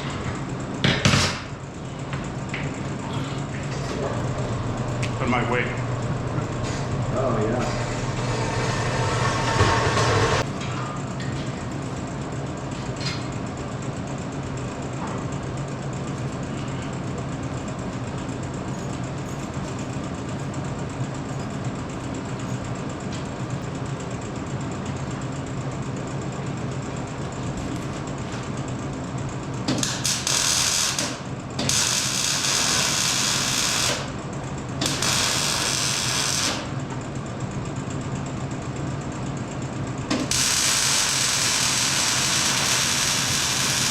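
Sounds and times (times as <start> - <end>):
shop machinery humming: 0.0 - 43.9.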